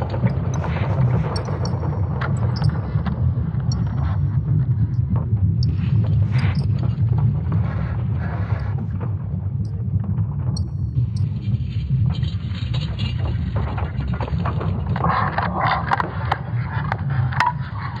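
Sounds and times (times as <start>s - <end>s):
deep steady rumble: 0.0s - 13.8s
crackles and creaks: 0.0s - 18.0s.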